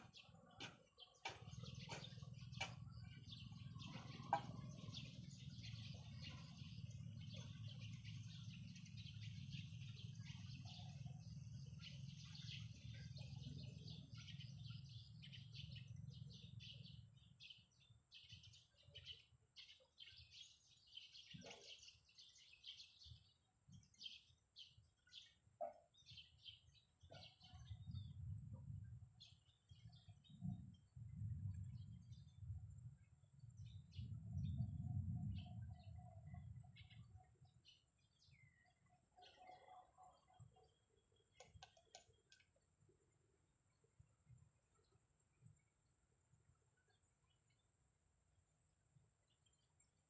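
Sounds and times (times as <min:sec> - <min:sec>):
low steady rumble: 0:00.0 - 0:18.3, 0:27.6 - 0:39.2
small birds chirping: 0:00.0 - 0:50.0.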